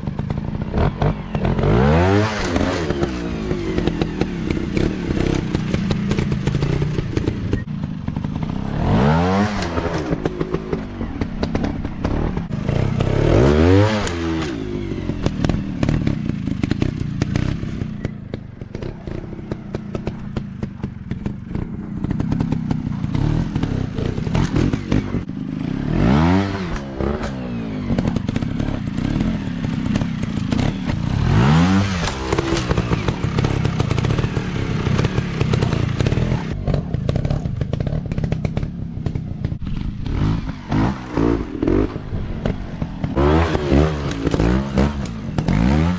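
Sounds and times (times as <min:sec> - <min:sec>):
dirt bike engines revving: 0:00.0 - 0:45.9
sharp clicks and clatter: 0:26.7 - 0:45.7.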